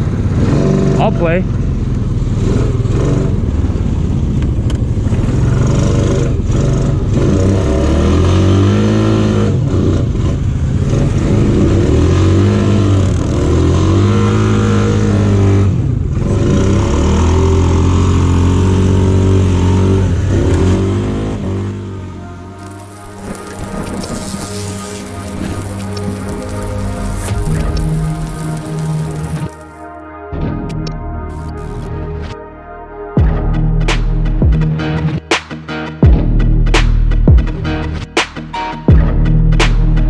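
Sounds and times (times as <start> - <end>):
off-road vehicle engine revving: 0.0 - 29.8, 31.3 - 31.9.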